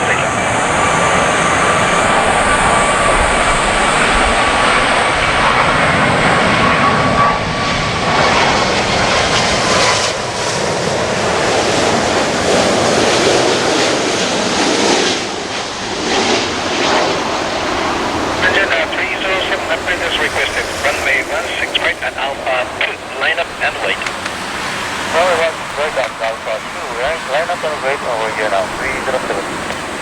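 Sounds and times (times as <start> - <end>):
loud jet engine noise: 0.0 - 30.0
thin high whine: 16.3 - 30.0.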